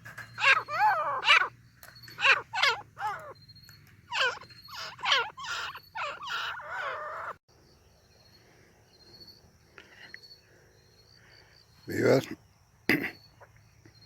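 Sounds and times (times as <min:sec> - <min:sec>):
faint high insect trill: 0:00.0 - 0:14.0
bird calling rapid repeated notes: 0:00.3 - 0:01.5, 0:02.1 - 0:03.4, 0:04.1 - 0:07.4.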